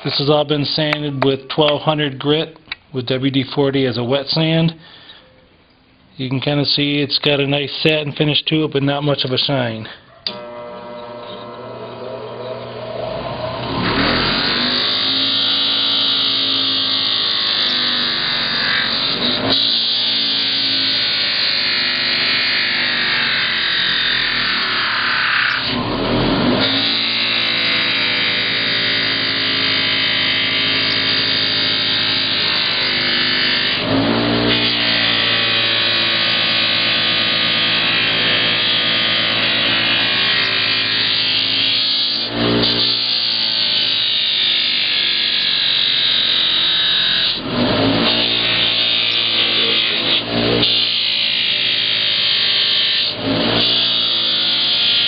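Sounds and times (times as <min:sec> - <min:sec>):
buffing wheel polishing metal: 0:35.2 - 0:55.0.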